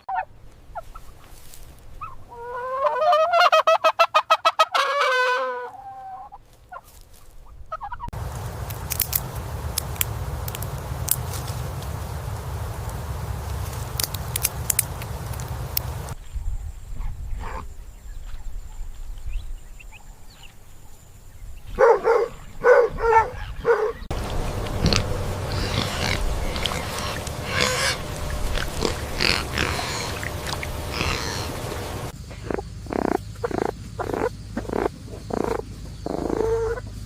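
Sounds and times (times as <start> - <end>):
steady background hiss: 8.2 - 16.2, 24.1 - 32.8
pigs grunting: 23.1 - 36.9
pigs squealing: 24.2 - 36.8.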